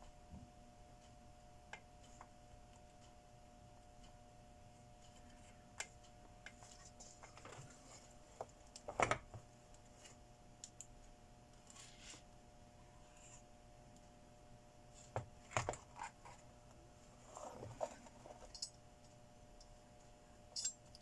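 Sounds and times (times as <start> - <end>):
faint steady hum: 0.0 - 21.0
tools clicking and tapping: 17.9 - 18.8, 20.5 - 21.0.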